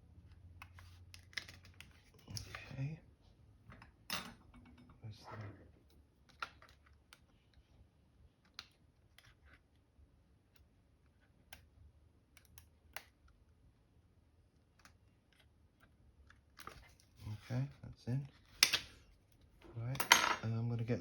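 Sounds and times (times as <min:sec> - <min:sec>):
plastic laptop parts clicking: 0:00.6 - 0:02.4, 0:11.4 - 0:13.5.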